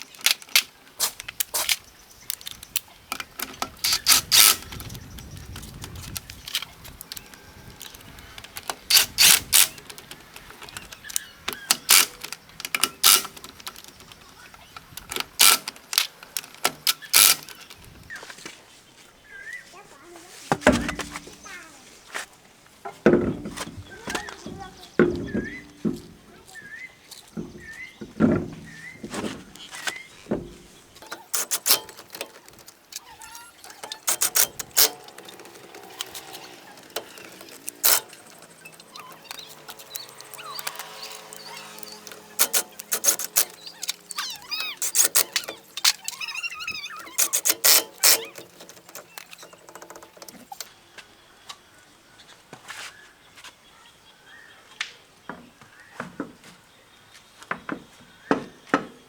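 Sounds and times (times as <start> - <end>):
metal tools clicking and knocking: 0.1 - 17.8, 30.2 - 50.7.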